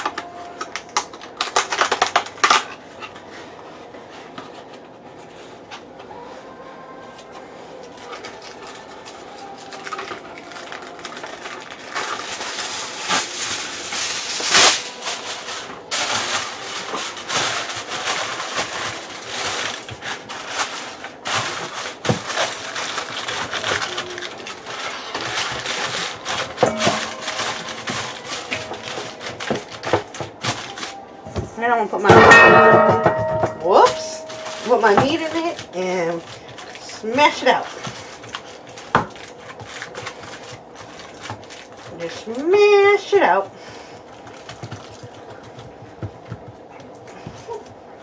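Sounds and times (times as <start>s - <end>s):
loud foil crunch: 0.0s - 3.2s, 7.8s - 31.2s, 32.2s - 45.7s
aluminum foil crinkling: 0.0s - 48.0s.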